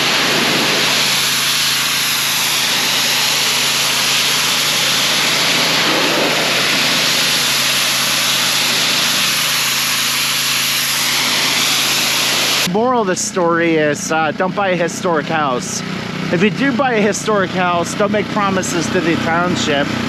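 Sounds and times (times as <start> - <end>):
water jet hissing against wall: 0.0 - 12.7
pressure washer engine running: 0.0 - 20.0.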